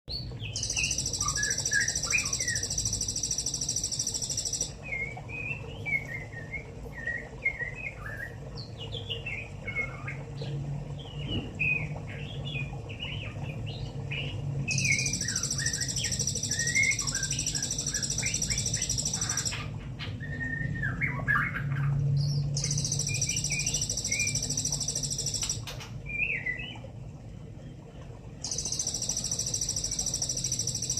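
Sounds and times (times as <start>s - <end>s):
young bird twittering: 0.6s - 4.7s, 14.7s - 19.7s, 22.6s - 25.7s
low hum: 12.7s - 19.8s, 21.8s - 30.9s.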